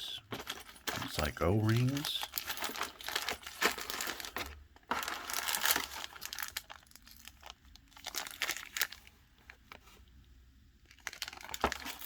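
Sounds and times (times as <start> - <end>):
packaging crinkling: 1.6 - 9.9, 10.9 - 12.0.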